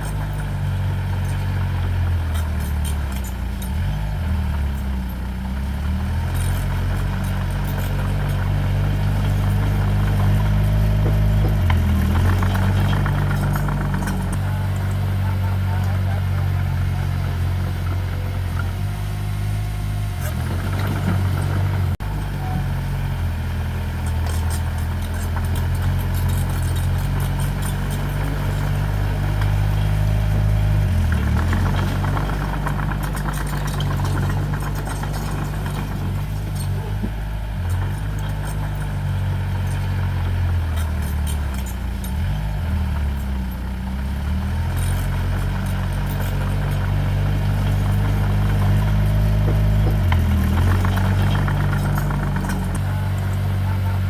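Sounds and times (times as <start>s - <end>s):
diesel engine running: 0.0s - 54.0s
light metallic rattling: 23.6s - 54.0s.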